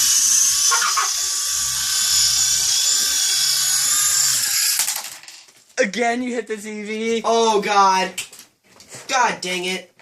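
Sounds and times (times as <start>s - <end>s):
toy helicopter rotor whine: 0.0s - 5.3s.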